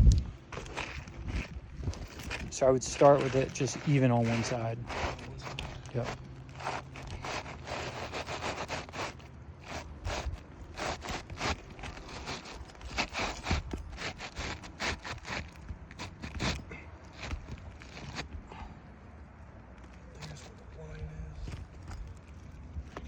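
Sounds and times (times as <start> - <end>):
roof shingles scraping: 0.5 - 18.4.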